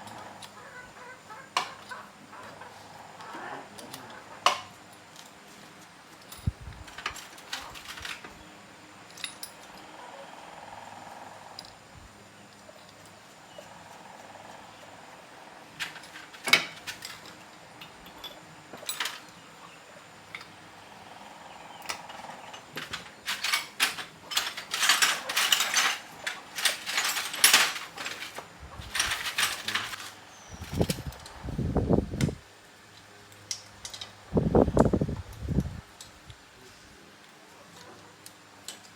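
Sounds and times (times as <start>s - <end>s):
rapid high clattering and scraping: 22.6s - 31.2s.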